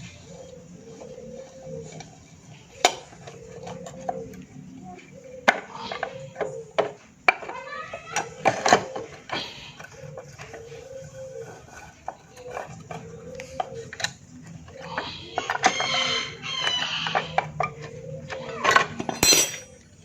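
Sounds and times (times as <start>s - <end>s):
metal tools clinking: 18.6s - 20.0s.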